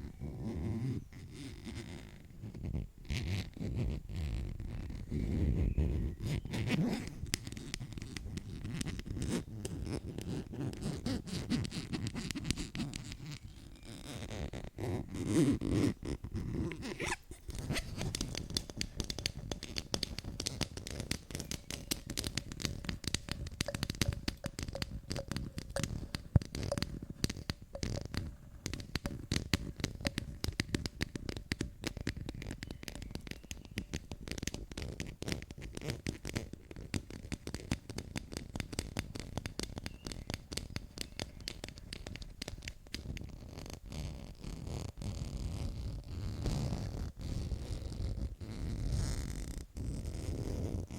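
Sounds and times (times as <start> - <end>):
scratchy rubbing: 0.2 - 50.9
quick tapping: 17.4 - 36.3, 36.9 - 43.3.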